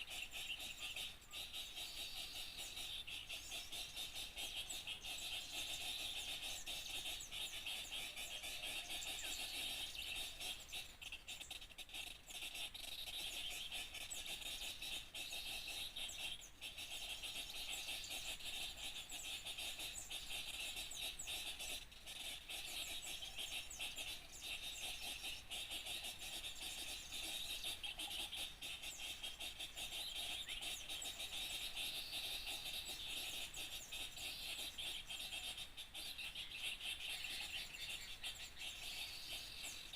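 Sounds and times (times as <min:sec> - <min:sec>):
chorus of small birds chirping: 0:00.0 - 0:39.9.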